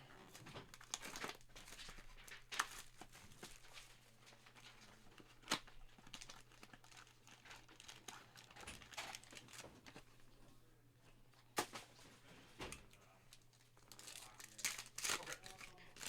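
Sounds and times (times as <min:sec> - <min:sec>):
wrappers crinkling and tearing: 0:00.2 - 0:10.0, 0:13.3 - 0:16.0
sharp wrapper crackles: 0:00.6 - 0:03.9, 0:05.3 - 0:09.7, 0:13.3 - 0:16.0.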